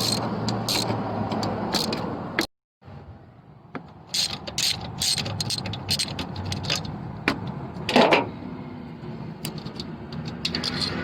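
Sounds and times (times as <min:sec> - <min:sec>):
ratchet wrench clicking: 0:00.0 - 0:02.1, 0:04.1 - 0:07.0, 0:09.4 - 0:11.0.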